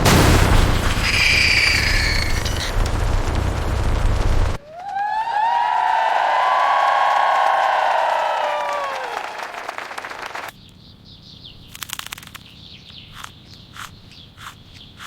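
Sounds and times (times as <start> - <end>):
cheering and applause: 4.6 - 10.5
birds chirping: 10.5 - 15.0.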